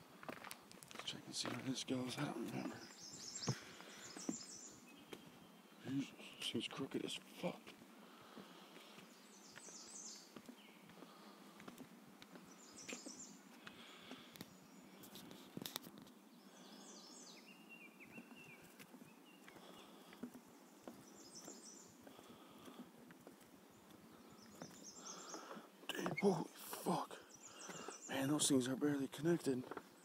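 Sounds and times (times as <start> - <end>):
faint footsteps: 0.0 - 6.4, 7.2 - 16.9, 17.8 - 28.0
songbird chirping: 0.0 - 30.0
rustles: 7.2 - 28.6.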